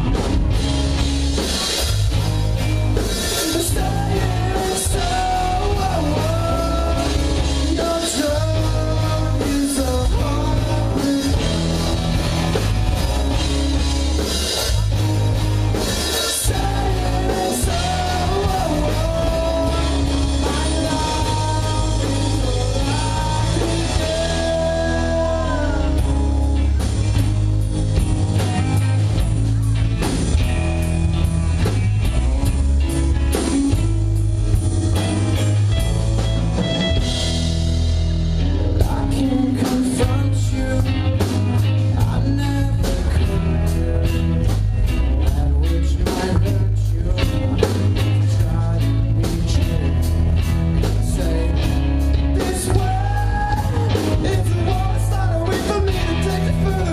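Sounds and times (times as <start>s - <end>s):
bass guitar: 0.0s - 56.9s
drum kit: 0.0s - 56.9s
electric guitar: 0.0s - 56.9s
person singing: 3.0s - 13.4s, 15.8s - 27.0s, 38.2s - 56.9s.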